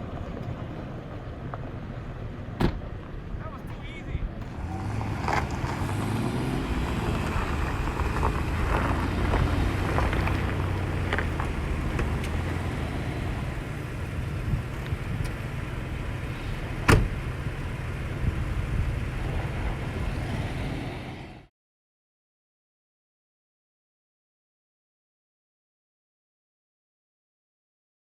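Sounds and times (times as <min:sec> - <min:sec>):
truck engine and tyre rumble: 0:00.0 - 0:21.5.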